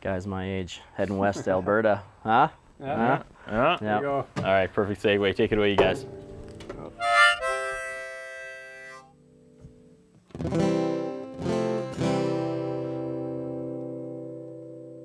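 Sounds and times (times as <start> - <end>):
acoustic guitar strumming chords: 5.7 - 15.0
harmonica notes: 5.9 - 9.4.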